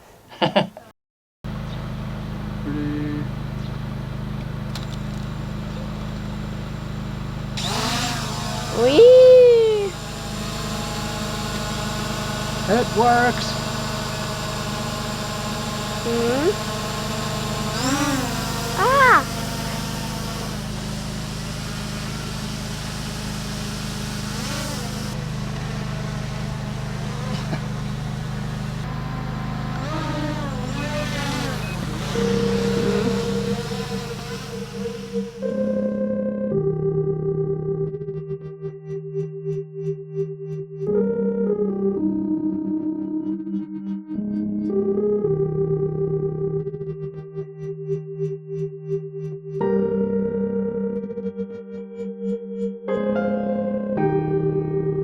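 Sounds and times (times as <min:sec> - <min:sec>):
drone propellers buzzing: 0:01.5 - 0:36.1.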